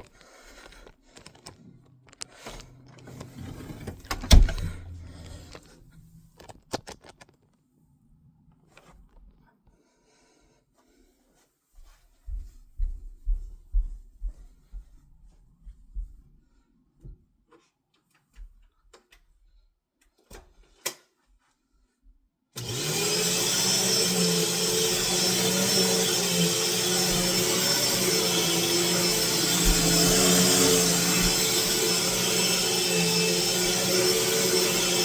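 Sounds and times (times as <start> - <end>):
vacuum cleaner motor running: 22.6 - 35.0.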